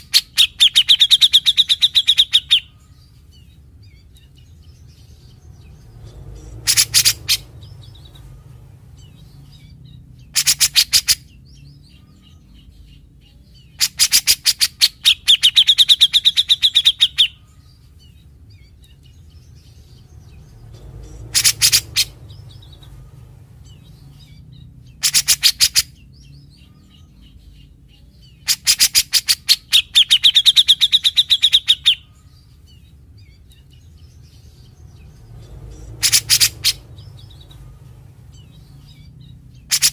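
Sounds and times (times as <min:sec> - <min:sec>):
bird rattling call: 0:06.4 - 0:08.1, 0:21.0 - 0:23.0, 0:25.0 - 0:25.9, 0:35.7 - 0:37.6, 0:39.7 - 0:39.9.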